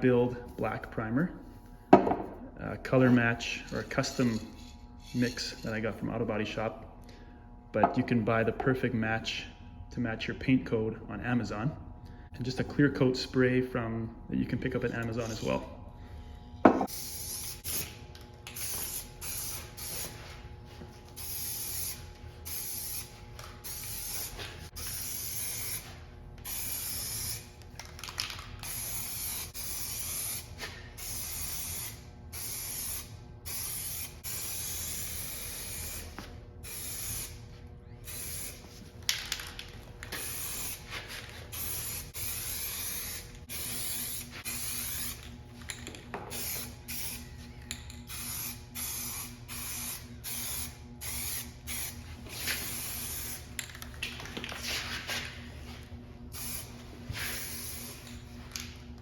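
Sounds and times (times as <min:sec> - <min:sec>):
spray paint can hissing: 0:16.8 - 0:20.3, 0:21.2 - 0:37.4, 0:38.0 - 0:38.7, 0:39.4 - 0:45.3, 0:46.3 - 0:47.2, 0:48.0 - 0:53.5, 0:56.3 - 0:58.2.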